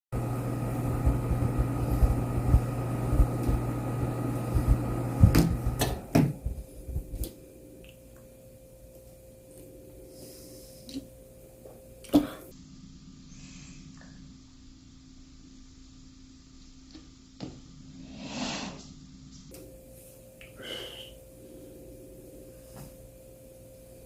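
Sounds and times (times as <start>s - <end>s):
steady mechanical hum: 0.1s - 24.0s.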